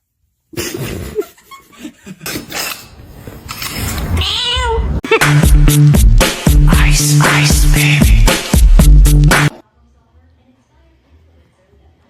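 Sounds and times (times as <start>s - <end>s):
cat meowing: 4.2s - 5.0s
music with bass line: 5.1s - 9.6s.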